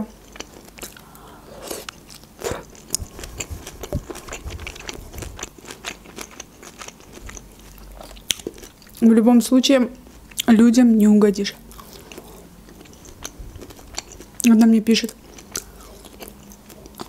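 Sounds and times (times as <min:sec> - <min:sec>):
person chewing crunchy food: 0:00.1 - 0:09.0, 0:11.6 - 0:17.0.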